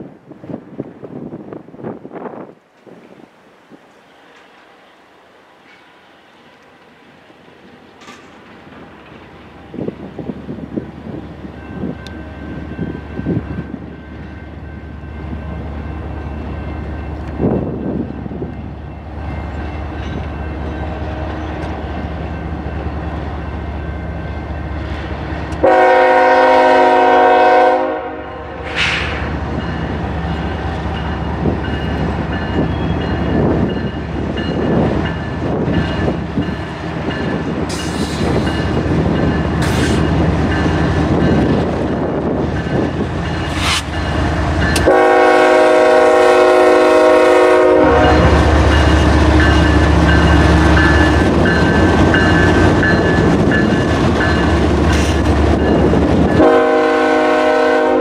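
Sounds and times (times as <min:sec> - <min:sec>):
diesel locomotive rumbling: 0:00.0 - 0:58.0
rail cars clattering over track: 0:05.6 - 0:27.6, 0:28.6 - 0:58.0
locomotive air horn chord: 0:25.6 - 0:29.1, 0:44.8 - 0:48.5, 0:56.4 - 0:58.0.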